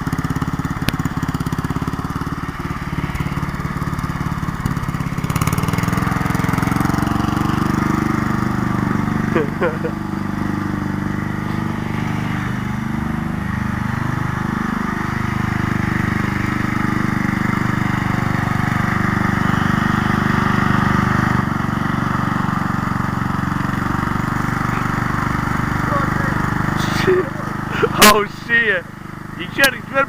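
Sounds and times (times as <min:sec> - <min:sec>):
small engine running: 0:00.0 - 0:30.0.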